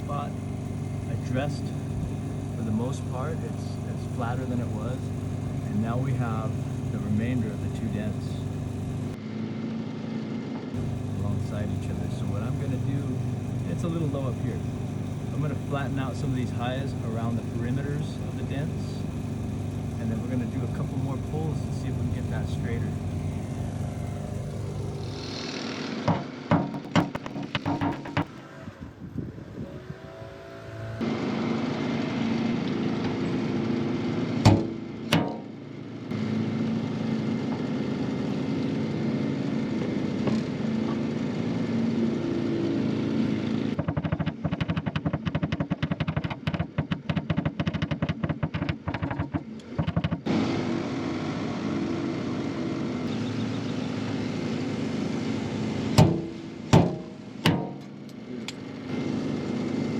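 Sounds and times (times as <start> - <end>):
steady motor hum: 0.0 - 59.9
sharp knocks: 26.0 - 28.3, 34.4 - 35.5, 43.8 - 50.3, 56.0 - 57.9.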